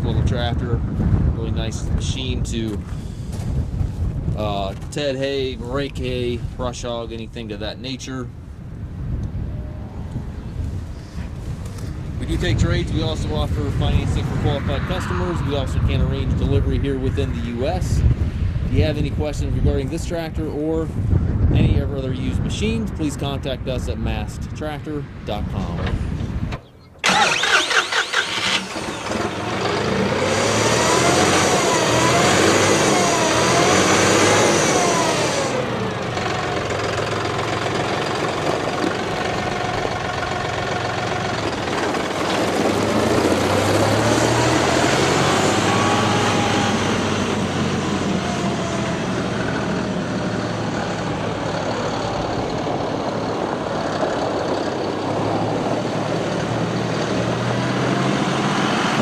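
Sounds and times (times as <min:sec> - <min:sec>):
tractor diesel engine revving: 0:25.6 - 0:59.0.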